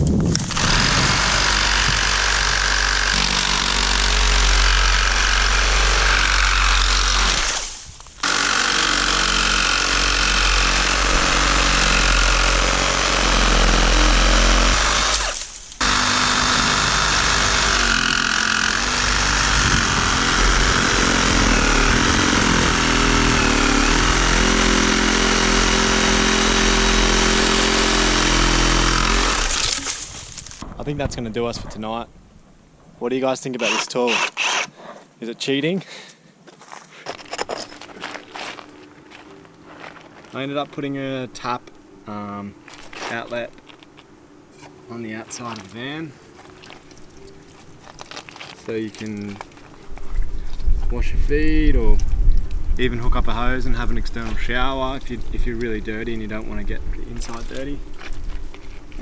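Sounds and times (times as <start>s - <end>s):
power saw cutting wood: 0.4s - 30.1s, 33.6s - 34.7s, 50.5s - 59.0s.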